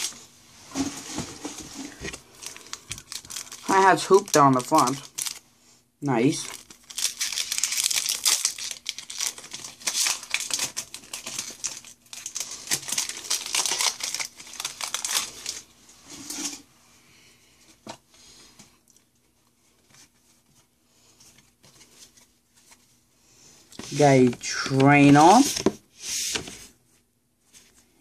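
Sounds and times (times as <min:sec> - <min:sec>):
foil wrapper crinkling and tearing: 0:01.9 - 0:05.4, 0:06.1 - 0:15.7
faint handling sounds: 0:14.9 - 0:28.0.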